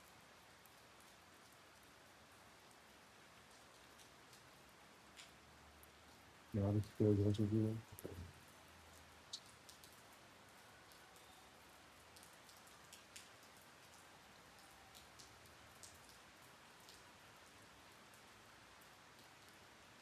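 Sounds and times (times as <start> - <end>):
raindrops ticking: 0.3 - 18.3
rain hissing: 4.4 - 10.2.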